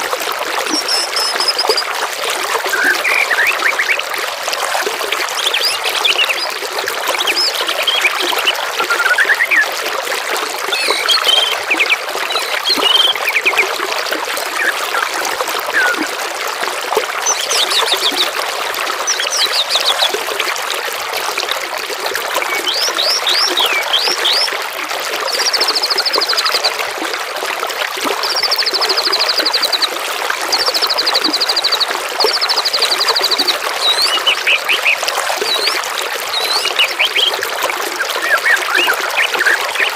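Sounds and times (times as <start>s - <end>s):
trickling water: 0.0s - 39.9s
songbirds chirping and whistling: 0.8s - 1.9s, 2.7s - 4.0s, 7.2s - 9.7s, 10.7s - 13.6s, 15.7s - 16.1s, 22.4s - 24.5s, 31.3s - 37.4s, 38.0s - 39.9s
bird trills: 10.7s - 13.6s, 33.8s - 37.3s.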